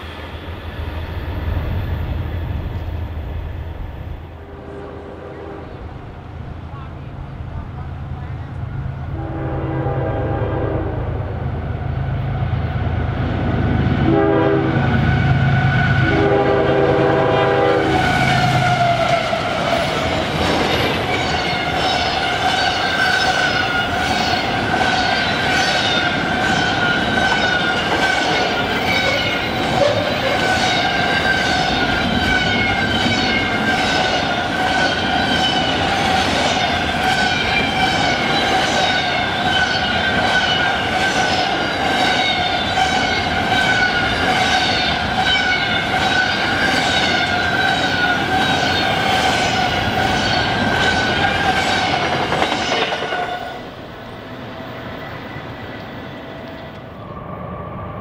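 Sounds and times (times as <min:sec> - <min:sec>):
locomotive horn blasts: 0:04.4 - 0:05.9, 0:09.1 - 0:11.2, 0:14.0 - 0:15.0, 0:15.6 - 0:18.0
train wheels clattering on rails: 0:17.9 - 0:53.8.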